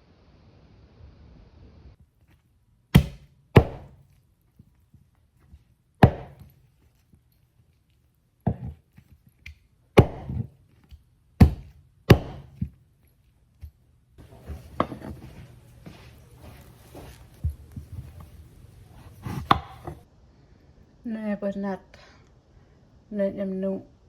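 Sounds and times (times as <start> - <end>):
knife chopping on cutting board: 3.0 - 4.0, 6.0 - 6.6, 8.5 - 8.8, 10.0 - 10.6, 11.4 - 12.8, 14.2 - 18.4, 19.0 - 20.0.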